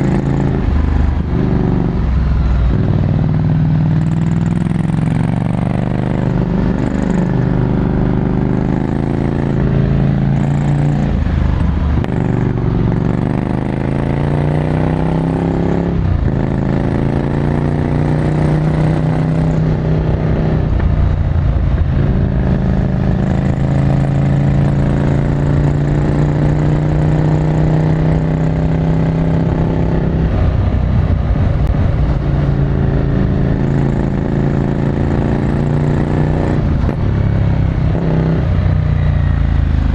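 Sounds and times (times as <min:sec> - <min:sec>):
motorcycle accelerating through gears: 0:00.0 - 0:39.9.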